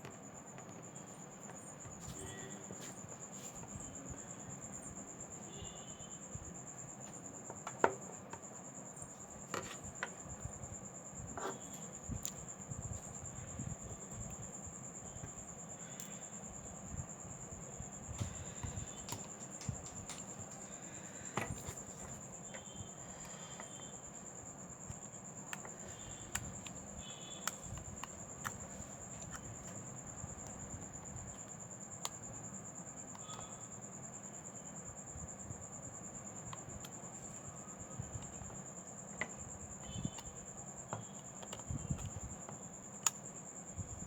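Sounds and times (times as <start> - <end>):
small tools clicking and tapping: 18.2 - 20.7.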